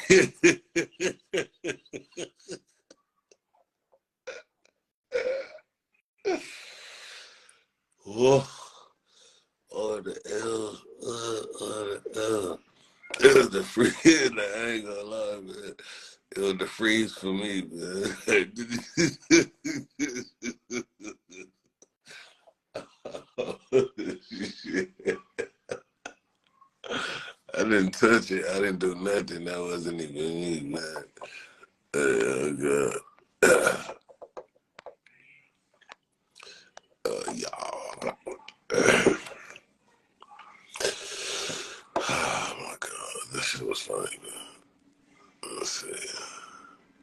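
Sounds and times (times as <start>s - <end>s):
man laughing: 0.0s - 2.6s, 13.2s - 15.7s, 16.4s - 21.4s, 22.8s - 25.8s
man laughing hard: 0.0s - 2.6s, 23.0s - 25.8s
breathy gasps: 6.3s - 7.6s, 26.8s - 27.4s, 40.8s - 42.6s.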